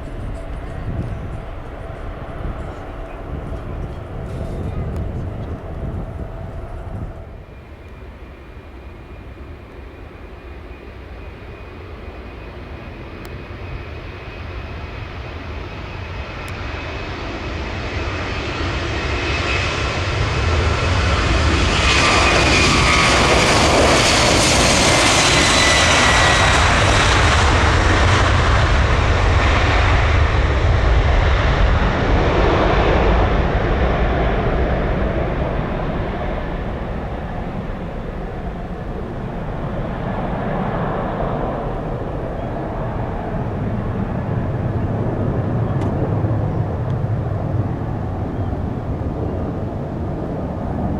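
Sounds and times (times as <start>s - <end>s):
jet engine whine falling in pitch: 0.0s - 50.9s
jet engines passing by: 0.0s - 50.9s.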